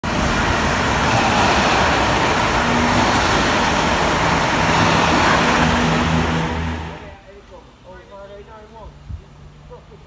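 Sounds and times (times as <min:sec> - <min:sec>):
train wheels rushing on rails: 0:00.0 - 0:07.2.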